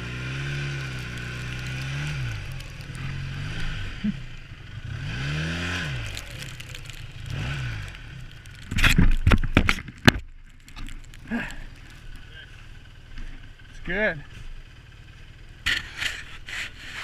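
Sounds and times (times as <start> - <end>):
snowmobile engine revving: 0.0 - 8.9.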